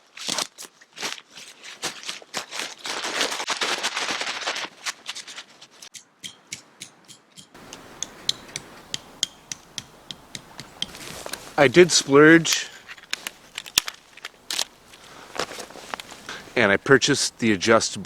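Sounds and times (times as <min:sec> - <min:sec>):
nylon tent fabric rustling: 0:00.0 - 0:05.9, 0:10.2 - 0:17.8
light clicks: 0:07.6 - 0:16.6.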